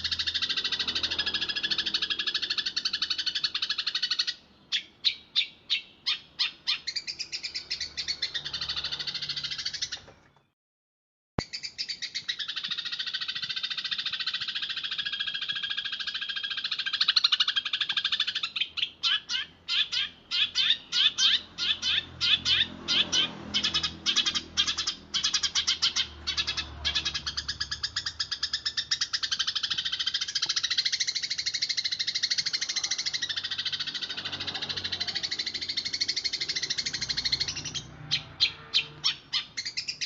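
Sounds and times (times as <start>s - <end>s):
sparrow chattering trill: 0.0s - 10.1s, 11.4s - 40.0s.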